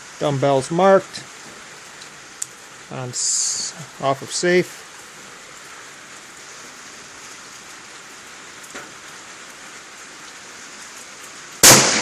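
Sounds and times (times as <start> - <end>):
rain-like outdoor hiss: 0.0 - 12.0.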